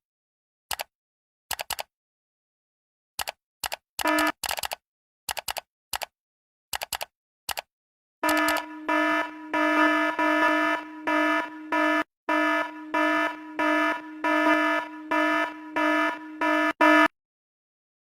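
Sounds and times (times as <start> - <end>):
electronic alarm beeping: 4.0 - 4.4, 8.2 - 17.1.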